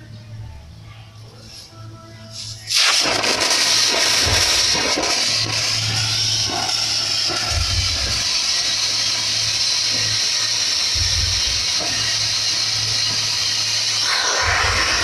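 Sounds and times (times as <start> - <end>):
low hum: 0.0 - 15.0
steam hissing from boiler: 2.3 - 15.0
low rumbles: 5.4 - 8.5, 11.0 - 11.8, 14.0 - 15.0.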